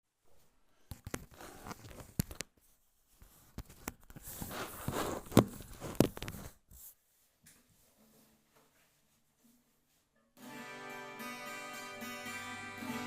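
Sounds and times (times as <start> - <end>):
rustling and scraping: 0.3 - 10.2.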